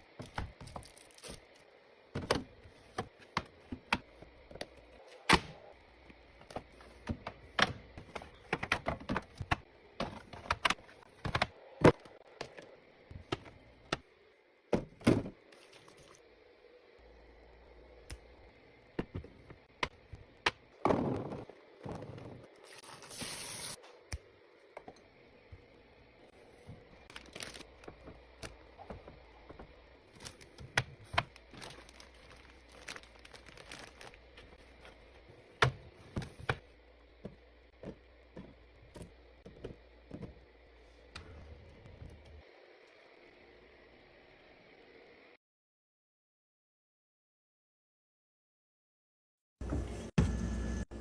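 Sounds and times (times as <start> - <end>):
packaging crinkling and rustling: 26.8 - 35.0.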